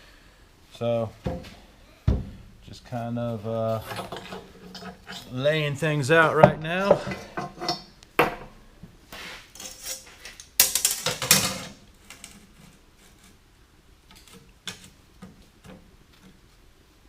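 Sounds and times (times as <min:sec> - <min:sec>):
scrap steel clanking: 0:03.6 - 0:07.9.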